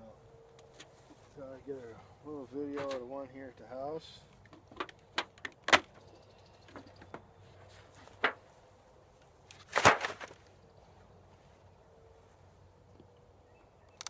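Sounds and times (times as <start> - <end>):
loud cracks: 9.5 - 10.4.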